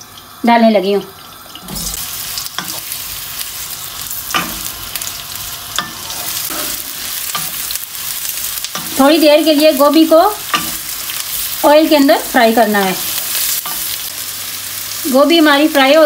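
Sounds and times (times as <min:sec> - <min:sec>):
food sizzling in frying pan: 0:00.0 - 0:16.0
spatula scraping and knocking pan: 0:04.1 - 0:05.1, 0:05.7 - 0:09.6, 0:10.4 - 0:11.5.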